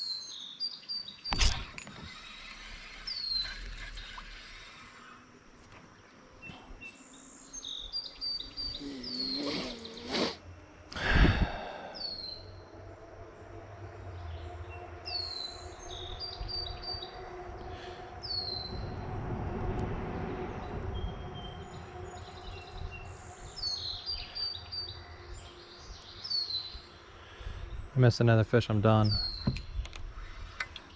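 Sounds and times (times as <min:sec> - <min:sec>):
small birds chirping: 0:00.0 - 0:10.4, 0:11.0 - 0:12.7, 0:20.6 - 0:30.9.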